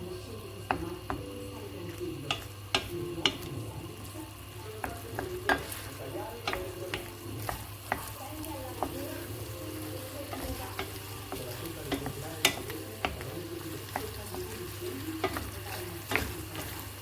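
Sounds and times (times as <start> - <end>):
food sizzling in a pan: 0.0 - 17.0
utensil clinking against pan: 2.2 - 3.6, 4.8 - 17.0.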